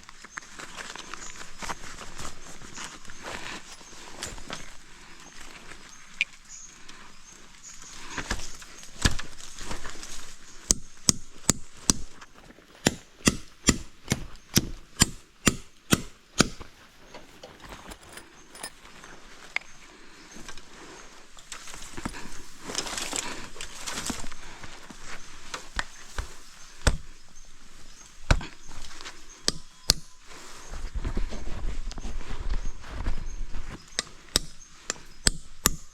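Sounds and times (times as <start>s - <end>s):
rustling: 0.0s - 10.7s, 16.6s - 35.3s
chopping wood: 10.7s - 12.2s, 12.8s - 16.7s, 25.5s - 27.1s, 28.3s - 28.6s, 29.5s - 30.2s, 33.9s - 35.9s.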